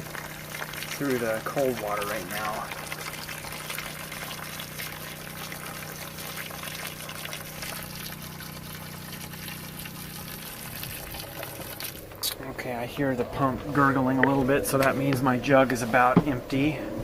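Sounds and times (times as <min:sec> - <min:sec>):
water running from faucet: 0:00.0 - 0:12.3
pump gurgling: 0:00.0 - 0:16.9
water pump humming: 0:00.0 - 0:17.0.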